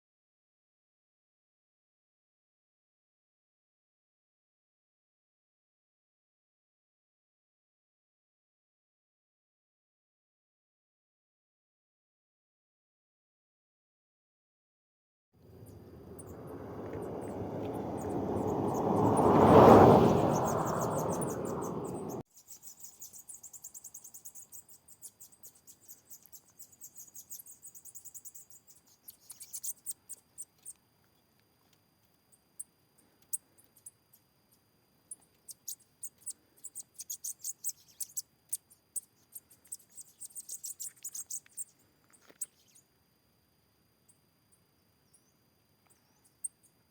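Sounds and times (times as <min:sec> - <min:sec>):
bird singing buzzy trills: 0:15.5 - 0:30.8, 0:35.4 - 0:42.9.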